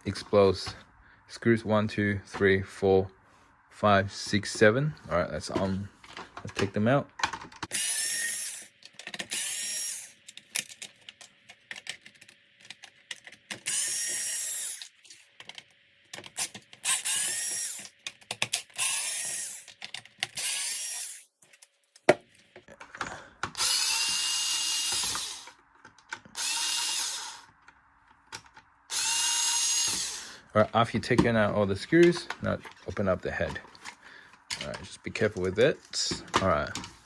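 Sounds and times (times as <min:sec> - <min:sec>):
clicks of screws and plastic: 0:05.5 - 0:07.8, 0:08.6 - 0:09.5, 0:10.2 - 0:24.2, 0:24.8 - 0:29.1, 0:31.0 - 0:37.0
cordless power driver whining: 0:07.7 - 0:10.2, 0:13.6 - 0:14.9, 0:16.4 - 0:17.9, 0:18.6 - 0:19.7, 0:20.4 - 0:21.2, 0:23.4 - 0:27.7, 0:28.9 - 0:30.5.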